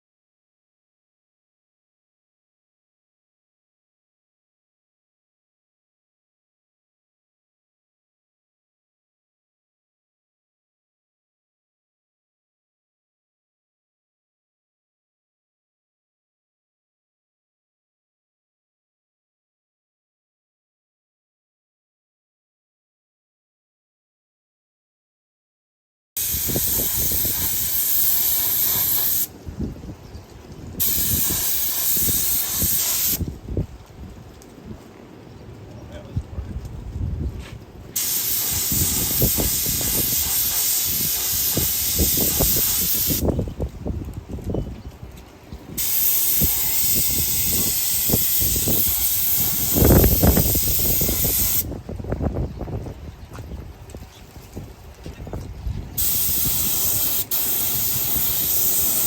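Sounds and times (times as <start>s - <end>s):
loud hissing blast: 26.2s - 29.3s, 30.8s - 33.2s, 38.0s - 43.3s, 45.8s - 51.7s, 56.0s - 59.0s.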